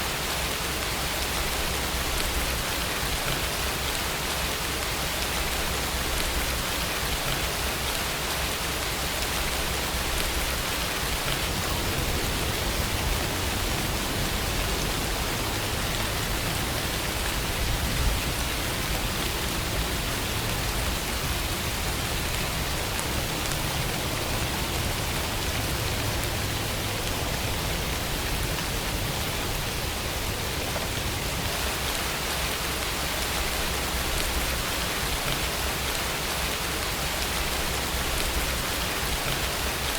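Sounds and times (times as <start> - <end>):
steady rain hiss: 0.0 - 39.9
low rumble: 11.2 - 18.9.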